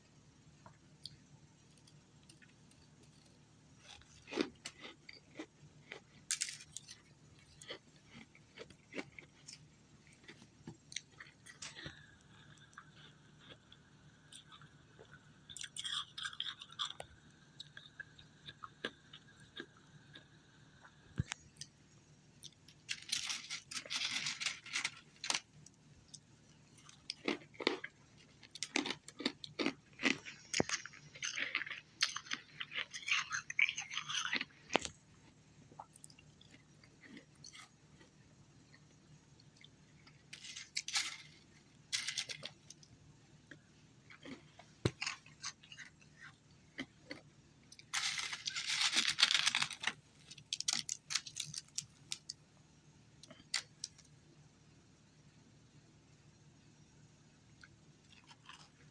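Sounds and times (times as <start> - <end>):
person crunching ice: 47.9 - 49.9.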